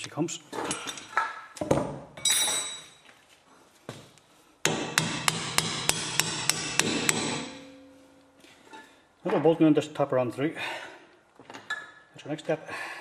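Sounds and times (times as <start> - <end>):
hammer striking steel: 4.6 - 8.2.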